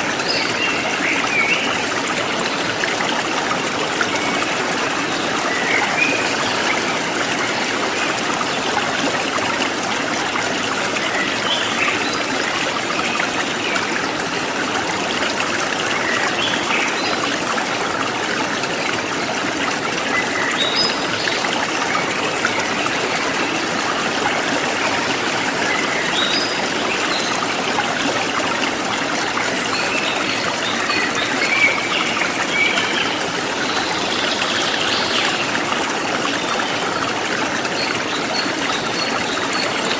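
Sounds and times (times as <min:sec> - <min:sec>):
stream flowing and trickling: 0:00.0 - 0:39.9.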